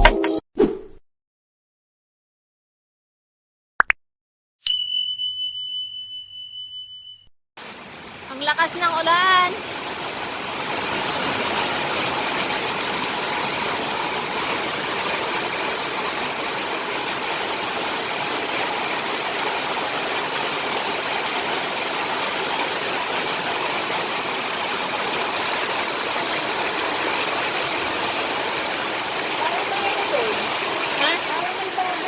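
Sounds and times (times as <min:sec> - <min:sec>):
heavy rain falling: 0:07.6 - 0:32.0.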